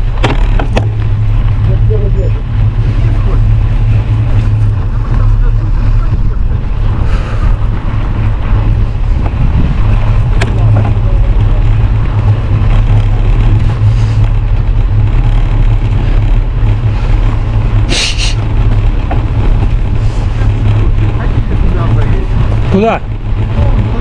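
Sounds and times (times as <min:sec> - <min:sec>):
wind buffeting microphone: 0:00.0 - 0:24.0
short hiss: 0:17.9 - 0:18.4.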